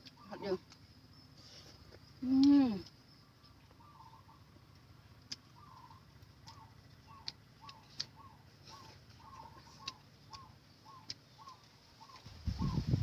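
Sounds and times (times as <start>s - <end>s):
bird call notes: 3.2s - 4.7s, 5.4s - 12.9s.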